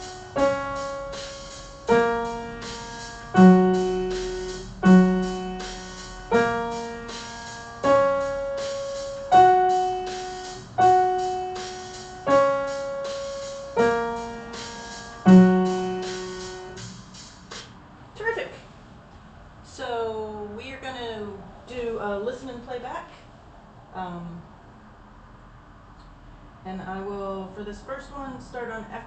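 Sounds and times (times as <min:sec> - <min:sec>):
piano playing slow notes: 0:00.0 - 0:17.6.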